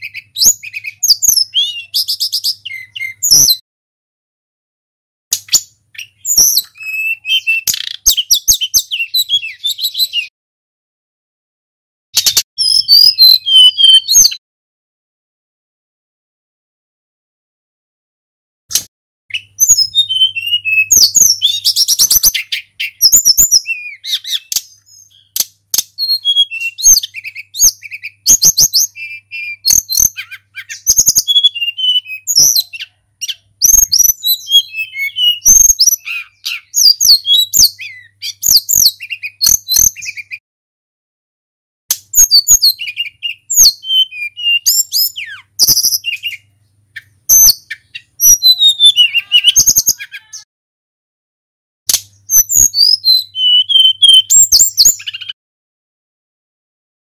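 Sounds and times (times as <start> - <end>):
bird singing whistled chirps: 0.0 - 3.6, 5.4 - 10.3, 12.2 - 14.4, 19.3 - 40.4, 42.1 - 50.5, 52.2 - 55.4.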